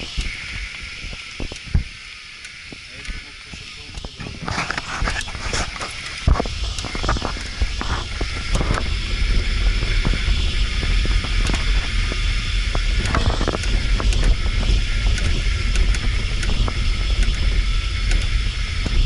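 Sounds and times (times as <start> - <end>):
vehicle rumble on rough road: 0.0 - 19.0.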